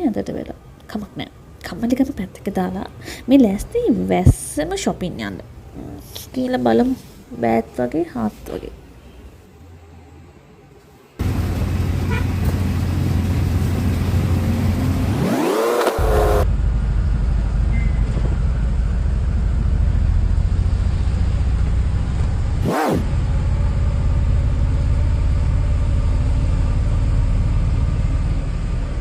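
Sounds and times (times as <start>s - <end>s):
car engine and road noise: 2.8s - 29.0s
short falling and rising sweep: 11.2s - 16.5s.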